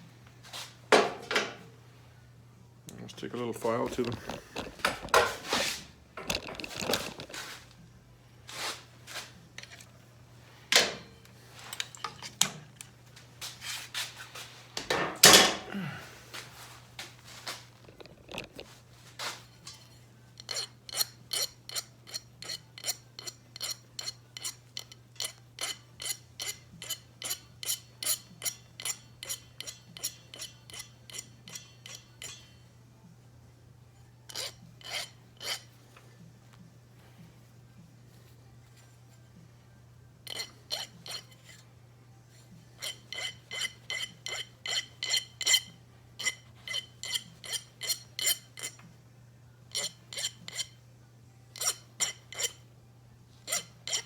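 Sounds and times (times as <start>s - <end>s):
faint steady hum: 0.0s - 13.6s, 14.2s - 54.0s
small metal parts clinking: 6.2s - 7.5s, 17.8s - 18.7s
hand file rasping on metal: 19.6s - 32.6s, 34.3s - 35.7s, 40.3s - 41.7s, 42.7s - 48.8s, 49.7s - 50.8s, 51.6s - 52.6s, 53.4s - 54.0s.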